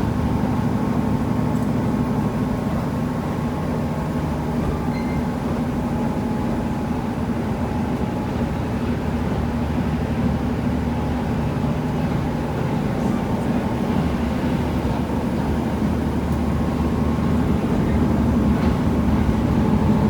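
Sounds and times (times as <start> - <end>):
train wheels on rails: 7.9 - 20.0
diesel engine drone: 12.6 - 20.0.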